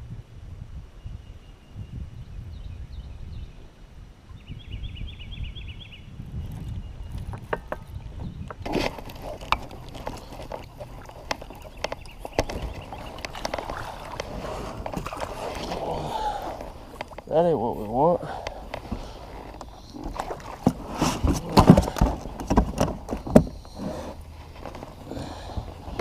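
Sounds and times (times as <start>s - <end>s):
wind rumble on microphone: 0.0s - 17.8s
clicks of fishing gear: 8.5s - 15.8s, 16.4s - 17.3s, 18.4s - 24.9s.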